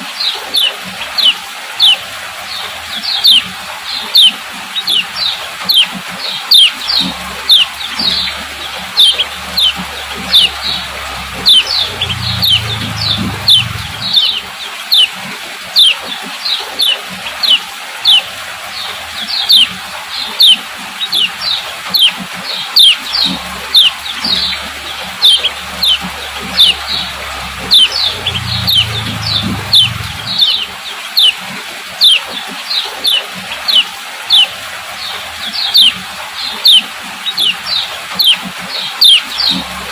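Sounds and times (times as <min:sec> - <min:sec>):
bird giving sharp calls: 0:04.1 - 0:05.9, 0:06.5 - 0:15.1, 0:20.3 - 0:31.4, 0:33.0 - 0:34.5, 0:36.6 - 0:37.6, 0:38.2 - 0:38.4, 0:39.0 - 0:39.7.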